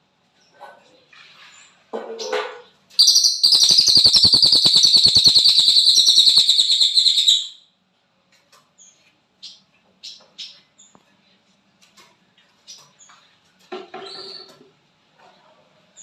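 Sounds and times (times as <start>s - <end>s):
songbird brief call: 3.0s - 7.4s
songbird rattling trill: 3.0s - 7.6s.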